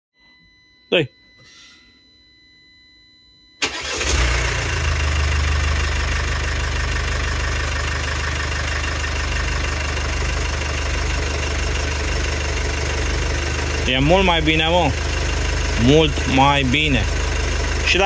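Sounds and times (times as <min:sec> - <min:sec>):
diesel engine starting and idling: 0:03.6 - 0:18.0.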